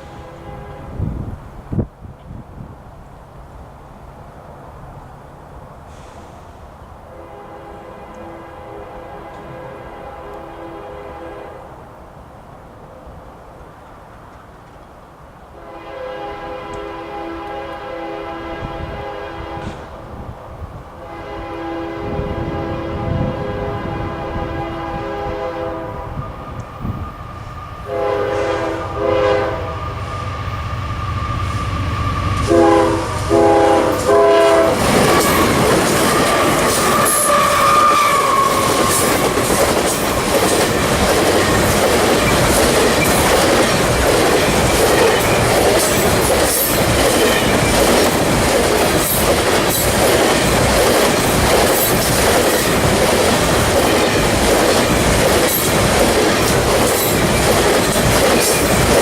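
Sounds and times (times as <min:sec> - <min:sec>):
train horn blasts: 0:00.0 - 0:01.3, 0:07.1 - 0:11.8, 0:15.6 - 0:20.1, 0:21.0 - 0:27.1, 0:27.8 - 0:30.6, 0:31.2 - 0:39.5
locomotive engine hum: 0:23.0 - 0:59.0
train wheels clattering: 0:31.3 - 0:59.0.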